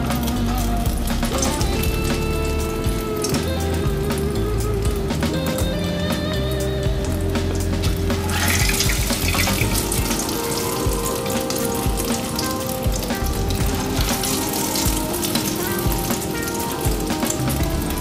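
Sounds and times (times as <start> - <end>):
soft background music: 0.0 - 18.0
battered food deep-frying in oil: 7.0 - 18.0.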